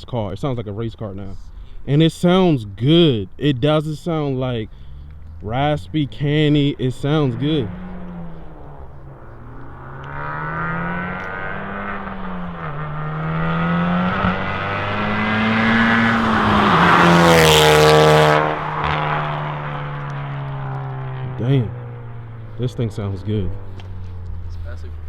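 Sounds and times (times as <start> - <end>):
car engine at full throttle: 0.0 - 25.0.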